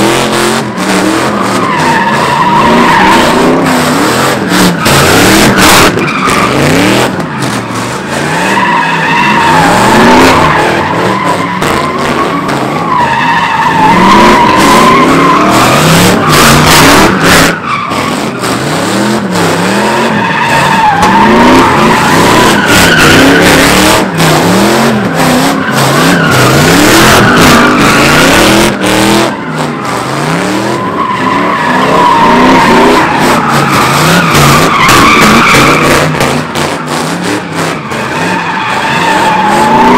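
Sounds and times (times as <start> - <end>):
car engine revving: 0.0 - 39.9
tires squealing: 0.0 - 39.9.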